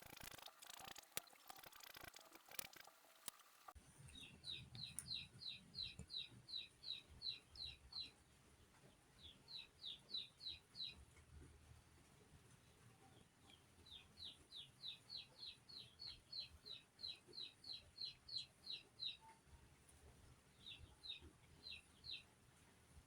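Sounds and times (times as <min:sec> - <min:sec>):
faint scratchy clicking: 0:00.0 - 0:05.2
bird chirping: 0:00.0 - 0:11.0, 0:12.6 - 0:19.4, 0:20.5 - 0:22.3.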